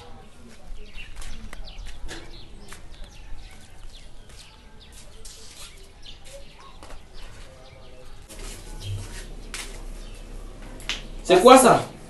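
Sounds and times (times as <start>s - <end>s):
small birds chirping: 0.0s - 12.0s
low steady rumble: 8.3s - 12.0s.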